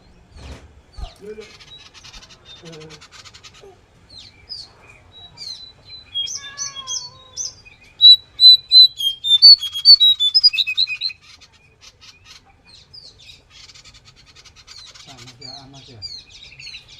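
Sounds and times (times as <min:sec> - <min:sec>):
songbird chirping and whistling: 0:05.4 - 0:11.2.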